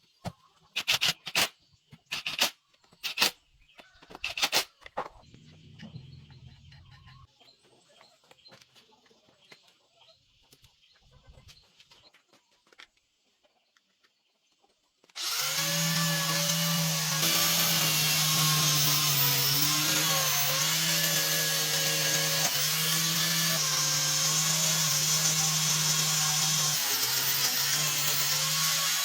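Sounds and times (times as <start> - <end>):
chickens clucking and squawking: 3.7 - 13.7.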